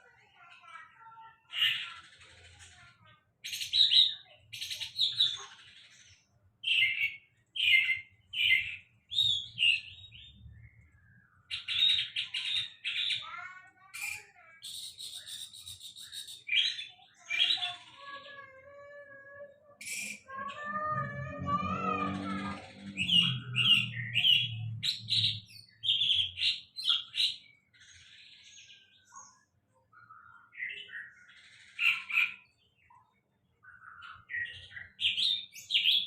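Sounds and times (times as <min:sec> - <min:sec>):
songbird chattering and whistling: 0:06.6 - 0:17.9, 0:19.8 - 0:20.3.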